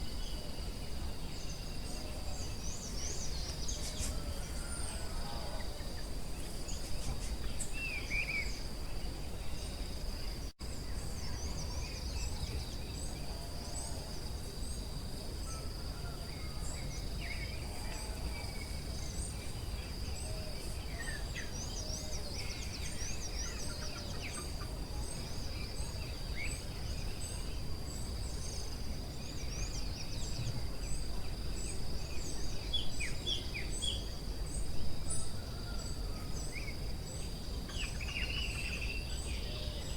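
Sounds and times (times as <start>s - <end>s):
insect drone: 0.0s - 39.9s.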